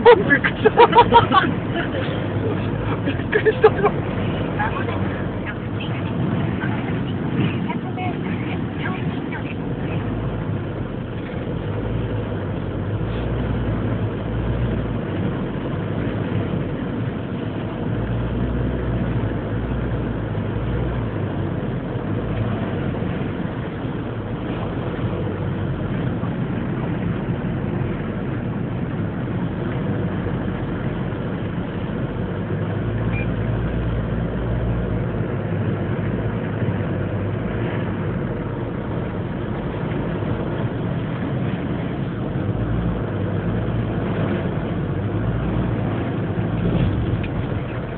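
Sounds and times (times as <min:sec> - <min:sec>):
car road and engine noise: 0:00.0 - 0:47.9.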